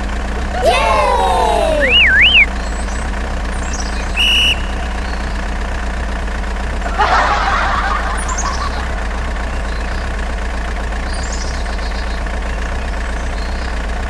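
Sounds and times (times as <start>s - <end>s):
low engine drone: 0.0s - 12.5s
warbling whistle: 1.8s - 2.5s, 4.2s - 5.1s.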